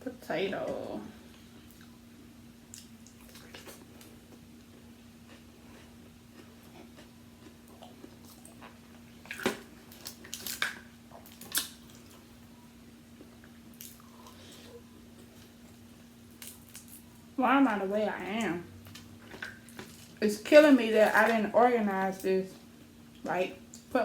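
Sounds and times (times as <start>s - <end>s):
faint steady hum: 0.0s - 24.0s
wet chewing and smacking: 2.7s - 12.5s, 18.8s - 20.2s.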